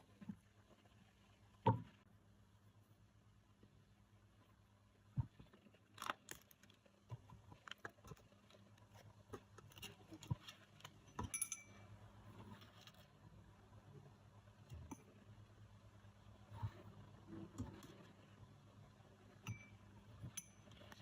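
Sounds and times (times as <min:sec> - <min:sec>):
faint low hum: 0:00.0 - 0:21.0
ringing clink: 0:11.2 - 0:11.9, 0:19.5 - 0:20.8.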